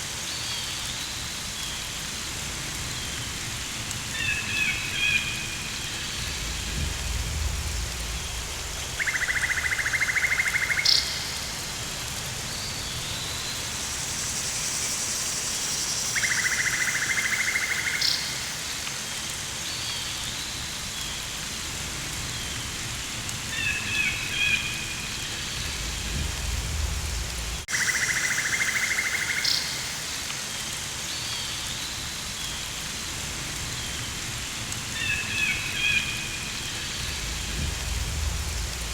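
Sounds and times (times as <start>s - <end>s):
steady rain: 0.0s - 38.9s
low rumbles: 5.6s - 9.0s, 25.5s - 27.7s, 36.5s - 38.9s.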